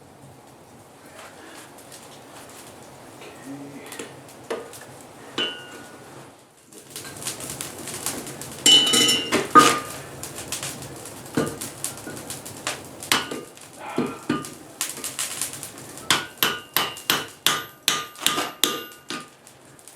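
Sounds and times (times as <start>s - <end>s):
steel tools clanking: 5.4s - 5.9s, 8.7s - 10.0s.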